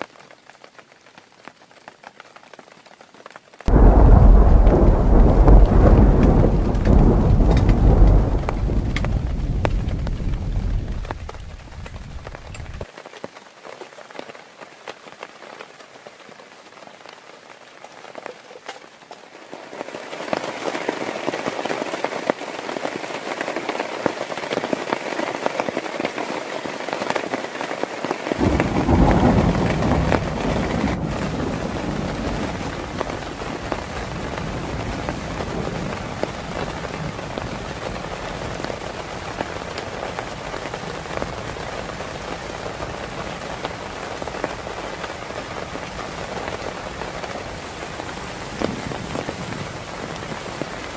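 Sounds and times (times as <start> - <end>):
heavy rain falling: 0.0 - 50.9
deep rumble: 3.7 - 12.8.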